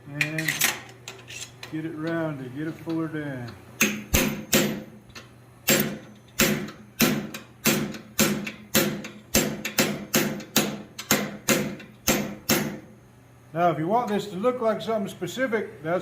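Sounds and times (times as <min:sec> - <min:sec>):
hammer striking steel on anvil: 0:03.8 - 0:04.9, 0:05.7 - 0:12.8.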